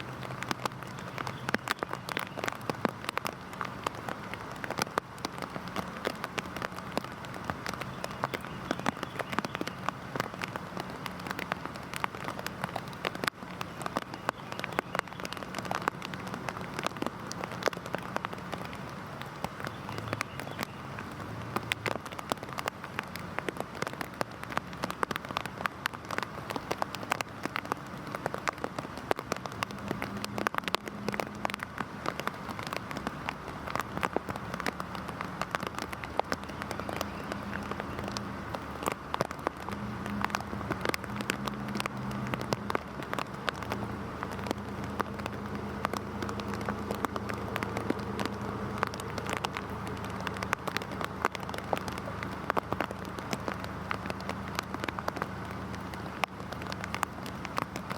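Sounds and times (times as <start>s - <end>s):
drops ticking on hard surface: 0.0s - 57.9s
heavy rain falling: 0.0s - 57.9s.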